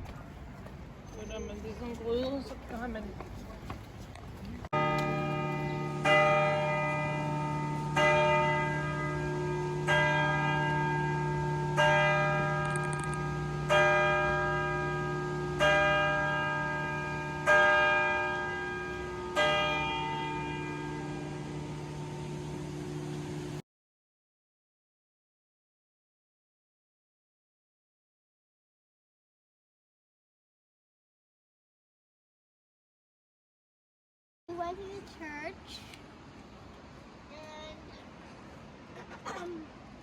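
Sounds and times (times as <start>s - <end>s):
church bell tolling: 4.8s - 23.6s
steady low hum: 18.8s - 23.6s.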